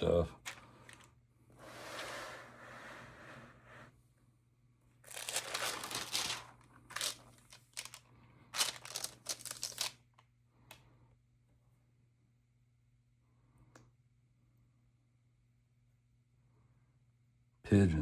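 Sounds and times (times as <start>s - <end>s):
crinkling paper or plastic: 0.4s - 1.1s, 5.0s - 10.3s
album pages turning: 5.1s - 8.0s, 8.6s - 10.0s.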